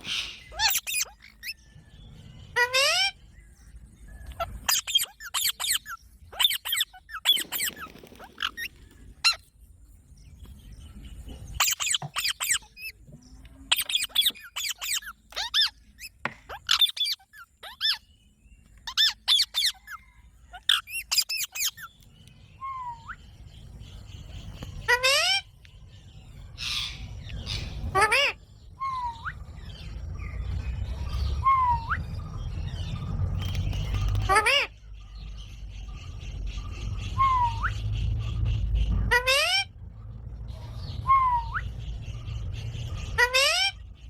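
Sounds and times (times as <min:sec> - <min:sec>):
parrots squawking: 0:00.0 - 0:01.6, 0:02.6 - 0:03.2, 0:04.4 - 0:09.4, 0:11.6 - 0:13.0, 0:13.7 - 0:18.1, 0:18.9 - 0:21.9, 0:24.8 - 0:25.6, 0:26.6 - 0:29.5, 0:34.1 - 0:34.8, 0:37.0 - 0:39.9, 0:40.8 - 0:44.0.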